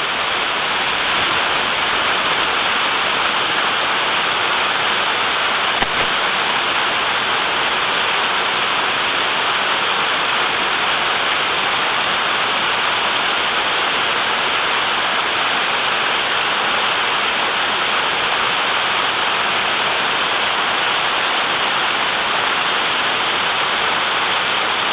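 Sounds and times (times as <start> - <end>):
small waterfall rushing: 0.0 - 24.9.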